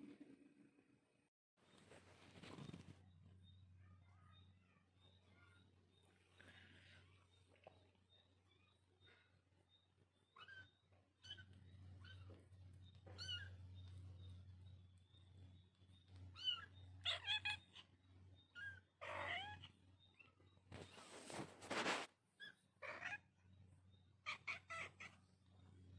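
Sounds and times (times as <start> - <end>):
low steady hum: 0.0 - 21.2
kittens mewing: 13.0 - 13.7, 16.4 - 19.9, 22.4 - 23.4, 24.2 - 25.2.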